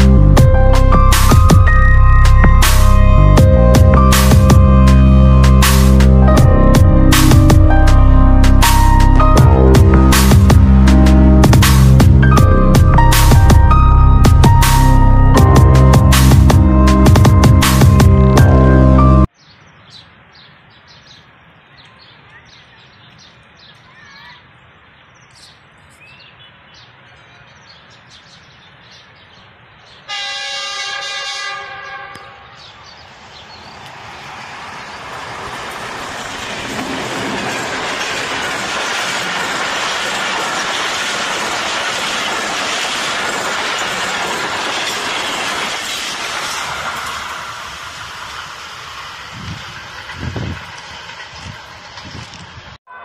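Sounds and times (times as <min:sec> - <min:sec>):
train passing by: 0:00.0 - 0:19.3, 0:29.4 - 0:53.0
wheels on rail noise: 0:00.0 - 0:19.4, 0:20.0 - 0:53.0
locomotive horn blast: 0:30.1 - 0:32.6.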